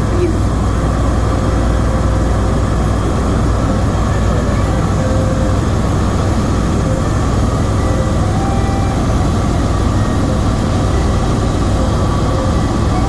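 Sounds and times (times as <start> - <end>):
helicopter rotor and engine rumble: 0.0 - 13.0.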